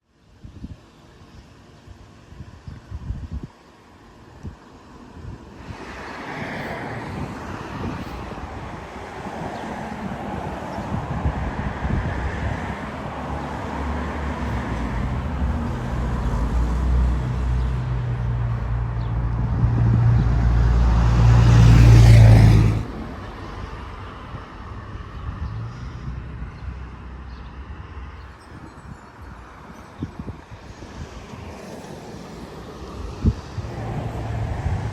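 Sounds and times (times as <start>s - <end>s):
diesel locomotive engine drone: 0.2s - 28.4s, 29.2s - 34.9s
wheel and rail noise: 3.6s - 20.9s, 25.6s - 34.9s.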